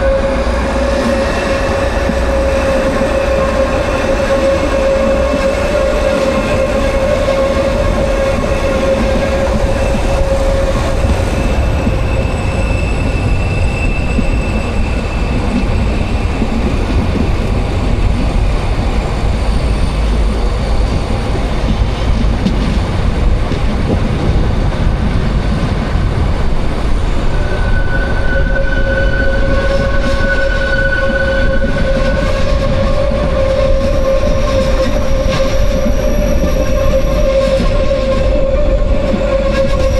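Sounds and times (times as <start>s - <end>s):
high wheel squeal: 0.0s - 16.5s, 27.3s - 39.9s
train wheels rumbling on rail: 0.0s - 39.9s.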